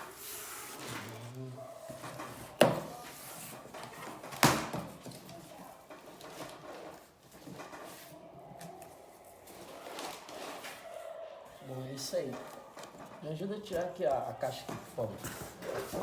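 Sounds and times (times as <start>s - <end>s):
packaging rustling: 3.3s - 10.9s.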